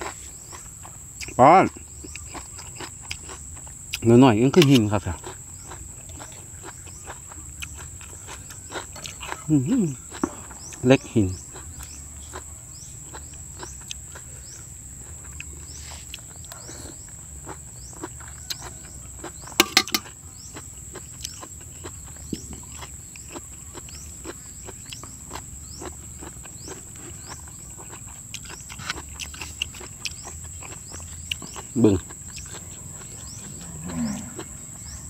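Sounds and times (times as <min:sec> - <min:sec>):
chewing and mouth clicks: 0:00.0 - 0:35.0
insects chirping drone: 0:00.0 - 0:35.0.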